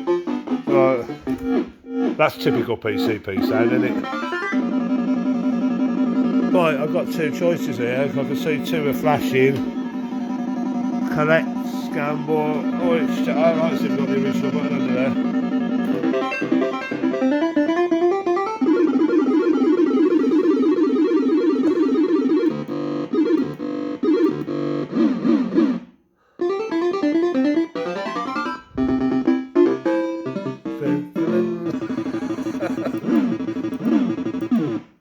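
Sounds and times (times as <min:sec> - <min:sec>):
fruit machine electronic bleeping tunes: 0:00.0 - 0:25.8, 0:27.3 - 0:35.0.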